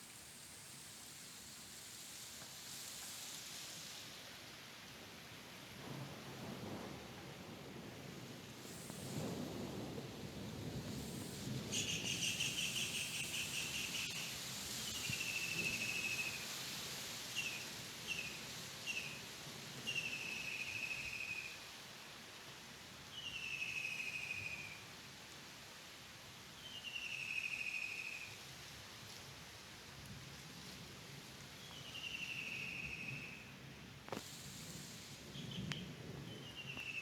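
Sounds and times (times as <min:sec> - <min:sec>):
faint outdoor background: 0:00.0 - 0:37.0.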